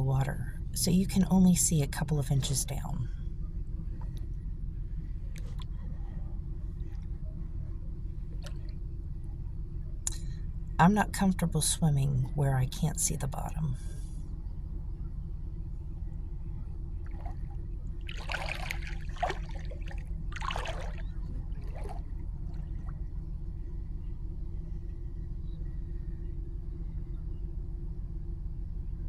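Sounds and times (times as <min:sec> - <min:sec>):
steady low rumble: 0:00.0 - 0:29.0
water splashing: 0:17.1 - 0:22.9.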